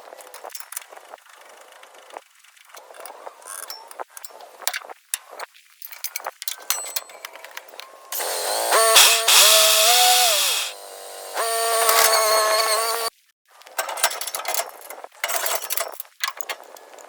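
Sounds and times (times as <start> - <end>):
power tool whining: 8.2 - 13.1.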